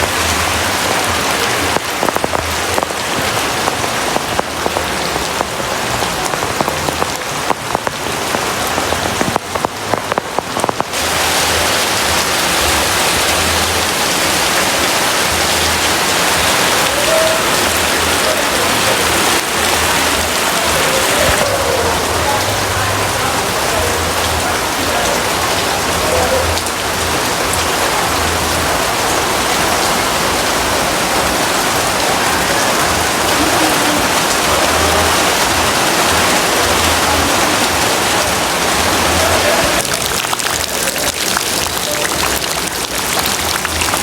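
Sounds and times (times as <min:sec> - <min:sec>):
heavy rain falling: 0:00.0 - 0:44.0.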